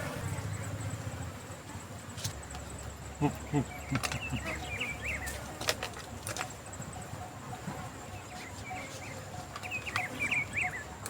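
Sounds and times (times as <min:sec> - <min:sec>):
birds chirping: 0:02.6 - 0:11.0.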